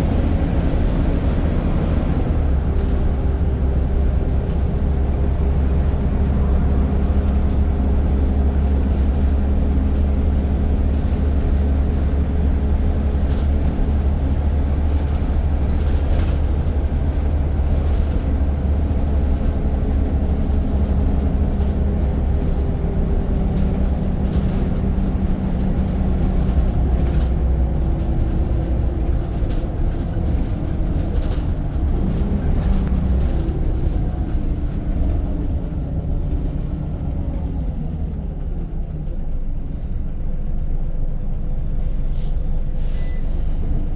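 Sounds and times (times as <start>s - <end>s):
bus engine drone: 0.0s - 43.9s.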